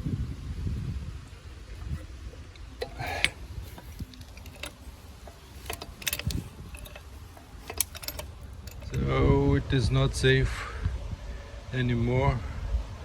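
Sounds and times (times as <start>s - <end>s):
metallic clicks from press rig: 2.8s - 9.1s.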